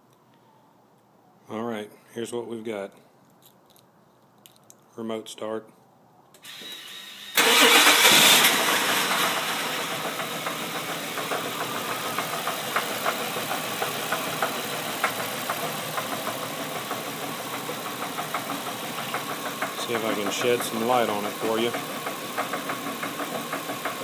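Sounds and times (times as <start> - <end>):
car engine starting and idling: 6.5 - 24.0
engine knock: 8.8 - 24.0.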